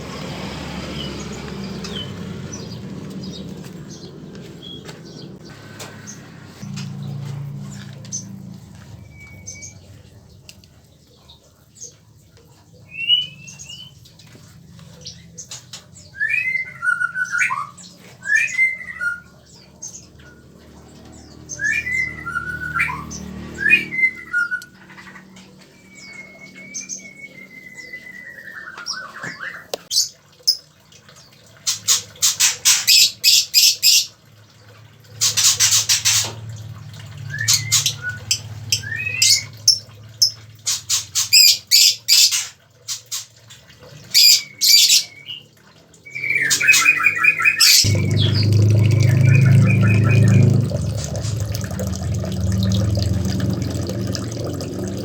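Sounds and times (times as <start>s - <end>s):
whistled bird notes: 9.0s - 9.9s, 21.5s - 29.7s, 37.2s - 39.6s, 46.0s - 51.4s.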